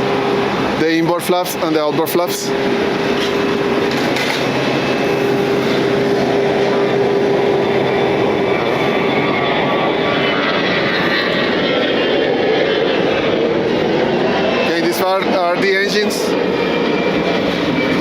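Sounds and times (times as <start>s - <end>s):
aircraft engine noise: 0.0s - 18.0s
hum-like tone: 1.6s - 14.4s.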